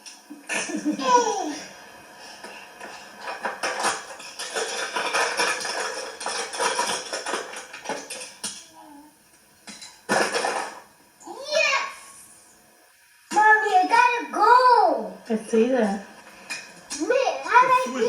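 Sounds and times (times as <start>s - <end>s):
toy cars clattering: 3.2s - 8.6s, 9.7s - 10.9s.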